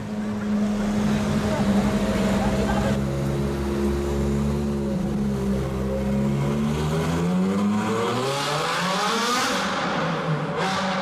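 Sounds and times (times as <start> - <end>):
sports car engine revving: 0.5 - 11.0.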